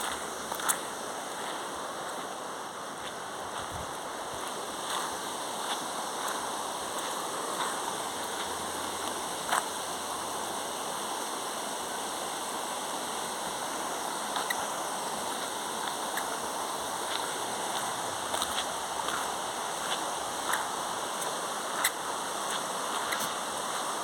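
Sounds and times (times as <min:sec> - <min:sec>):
flowing water: 0:00.0 - 0:24.0.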